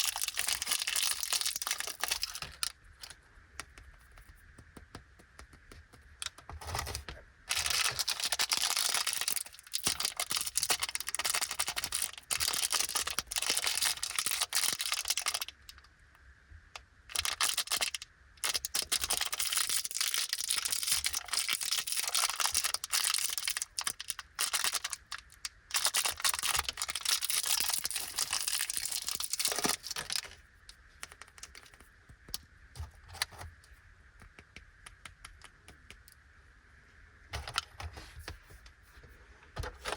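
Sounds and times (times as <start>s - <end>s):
plastic wrappers crinkling: 0.0s - 3.2s, 6.2s - 15.8s, 17.1s - 30.4s
wrapper tearing open: 17.2s - 30.3s.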